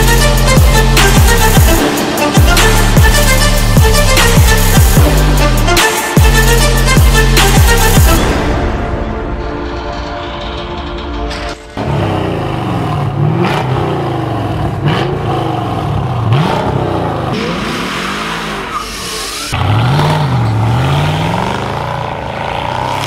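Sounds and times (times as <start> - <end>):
car engine revving: 0.0 - 8.2, 11.7 - 23.0
car accelerating hard: 11.8 - 23.0.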